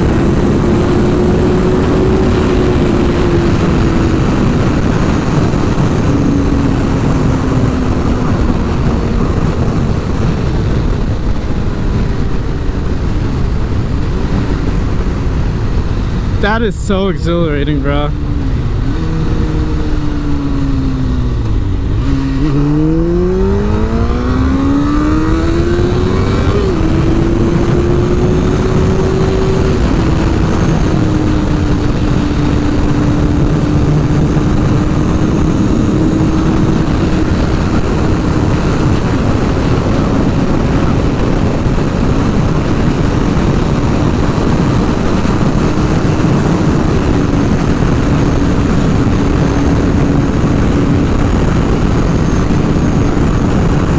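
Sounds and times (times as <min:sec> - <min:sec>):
motorcycle engine revving: 0:00.0 - 0:53.9
wind noise on microphone: 0:00.0 - 0:53.9.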